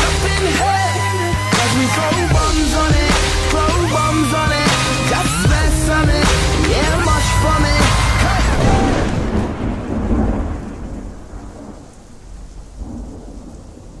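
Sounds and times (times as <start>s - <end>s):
thunder rumble: 2.3s - 14.0s
steady rain: 6.9s - 14.0s.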